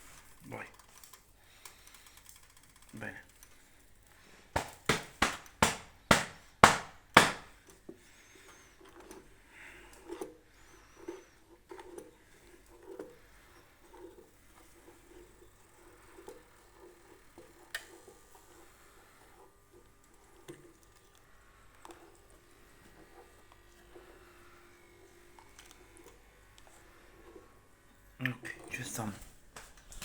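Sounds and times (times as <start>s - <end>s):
dough thudding on wooden board: 4.6s - 7.5s
sharp knocks on wood: 4.6s - 7.5s.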